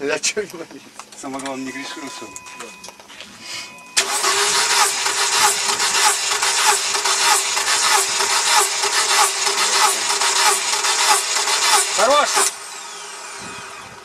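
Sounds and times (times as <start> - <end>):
starter motor whining: 3.7 - 14.0
engine cranking pulses: 4.0 - 14.0.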